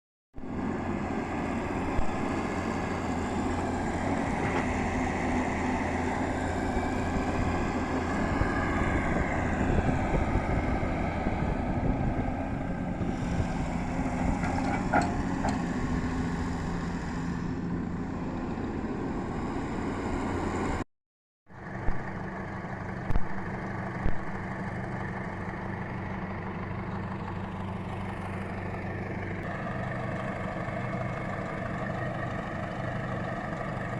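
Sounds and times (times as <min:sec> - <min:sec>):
heavy machinery engine running: 0:00.4 - 0:20.8, 0:21.6 - 0:33.9.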